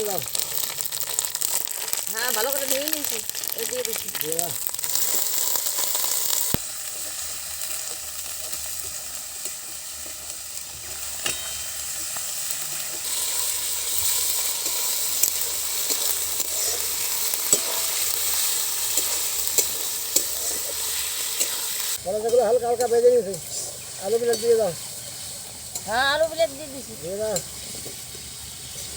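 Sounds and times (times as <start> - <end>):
livers sizzling in oil: 0.0 - 28.9
spoon scraping pan: 6.9 - 28.9.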